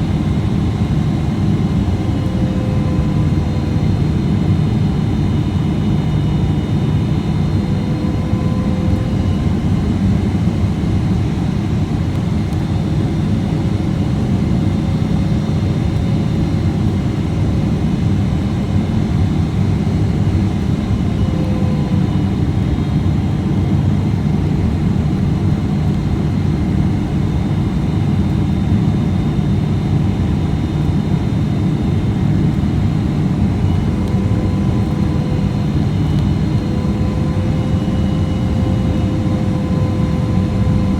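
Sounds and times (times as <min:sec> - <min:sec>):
faint wavering hum: 0:00.0 - 0:11.2, 0:20.0 - 0:24.2, 0:30.2 - 0:40.9
jet cabin airflow and engine noise: 0:00.0 - 0:40.9
faint steady high tones: 0:00.8 - 0:10.4, 0:20.2 - 0:23.2, 0:32.3 - 0:40.9.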